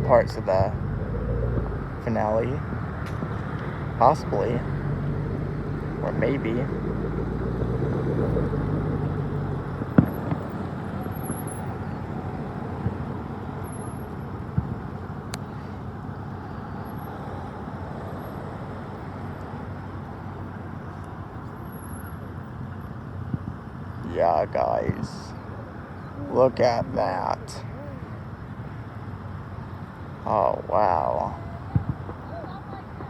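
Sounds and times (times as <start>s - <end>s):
traffic rumble: 0.0s - 33.0s
distant fireworks bangs and pops: 9.7s - 15.6s, 31.6s - 33.0s.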